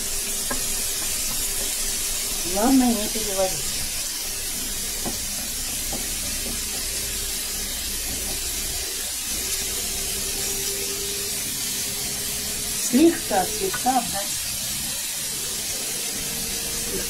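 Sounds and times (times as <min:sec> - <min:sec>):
peppers frying in oil: 0:00.0 - 0:17.0
wooden spatula knocking on pan: 0:00.4 - 0:01.7, 0:05.0 - 0:07.0.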